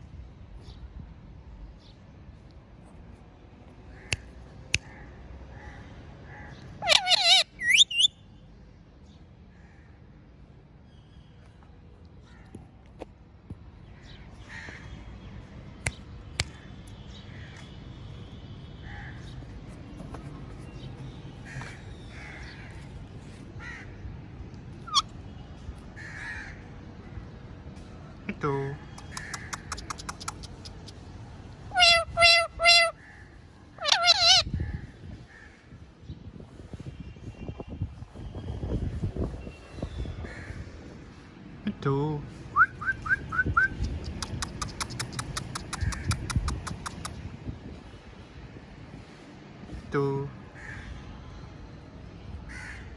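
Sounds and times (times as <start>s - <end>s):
parrot squawking: 6.8s - 8.1s, 24.8s - 25.1s, 31.7s - 33.0s, 33.8s - 34.5s
sharp clicks: 29.0s - 30.8s, 43.9s - 47.2s.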